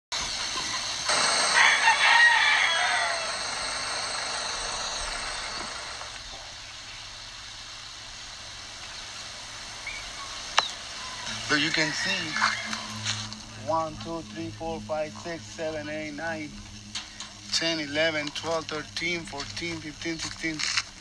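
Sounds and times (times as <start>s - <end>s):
steady high hiss: 0.2s - 21.0s
drawn-out animal call: 1.1s - 6.2s.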